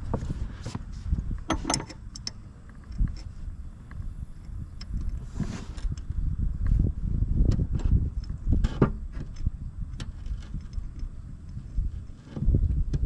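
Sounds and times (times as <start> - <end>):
steady low rumble: 0.0 - 13.0
metal clicks of bolts fitted: 1.5 - 3.3.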